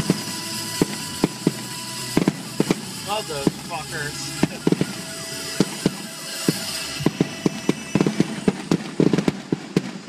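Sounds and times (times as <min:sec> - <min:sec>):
fireworks popping and banging: 0:00.0 - 0:10.0.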